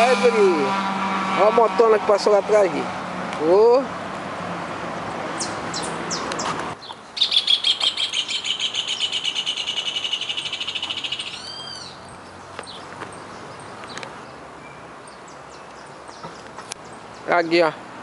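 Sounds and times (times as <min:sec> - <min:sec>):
bird trilling: 0:05.4 - 0:12.8.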